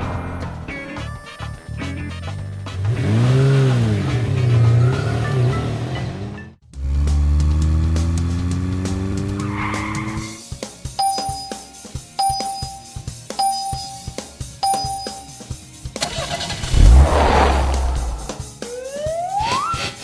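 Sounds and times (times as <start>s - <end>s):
background music: 0.0s - 6.6s
electronic beeps: 11.0s - 15.4s
cartoon engine revving: 16.0s - 18.4s
deep rumble: 16.4s - 18.5s
loud whoosh: 16.4s - 18.5s.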